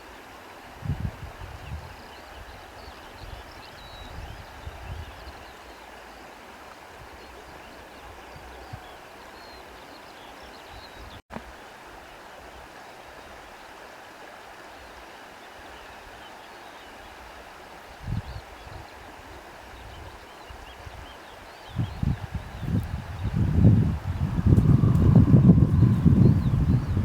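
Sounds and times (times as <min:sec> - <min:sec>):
wind through foliage: 0:00.0 - 0:27.0
faint birdsong chirps: 0:01.6 - 0:12.4, 0:17.9 - 0:27.0.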